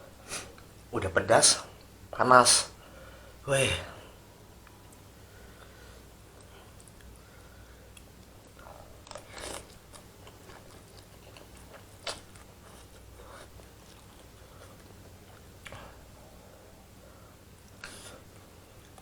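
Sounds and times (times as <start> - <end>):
person chewing noodles: 7.8 - 16.2.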